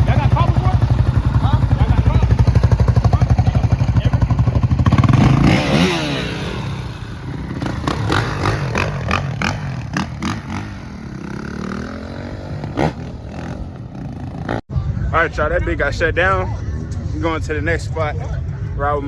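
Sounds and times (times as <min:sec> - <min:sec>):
vehicle engine with pulsing exhaust: 0:00.0 - 0:15.1.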